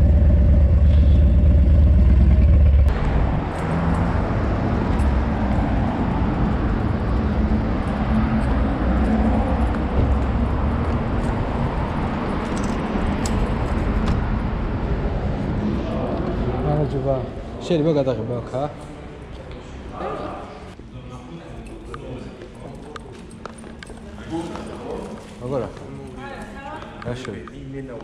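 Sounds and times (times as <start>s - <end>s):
vehicle engine low rumble: 0.0s - 16.6s
traffic and road noise: 0.0s - 28.0s.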